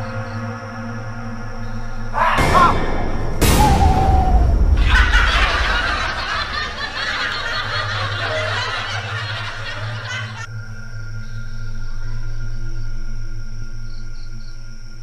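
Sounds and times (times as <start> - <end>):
crickets chirring: 0.0 - 15.0
snickering laughter: 4.8 - 10.5.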